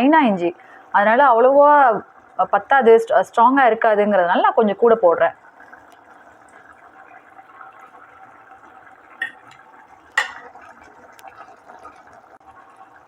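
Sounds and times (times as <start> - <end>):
gravy simmering in a pot: 0.0 - 13.0
utensil knocking against a pan: 10.2 - 10.5.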